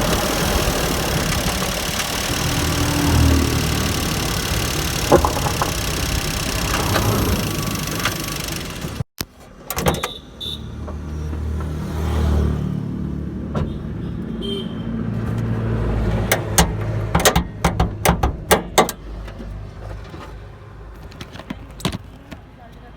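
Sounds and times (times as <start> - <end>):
loud rushing noise: 0.0 - 9.0
car engine idling: 0.0 - 9.1
sharp clicks and knocks: 0.0 - 10.1, 16.2 - 20.4.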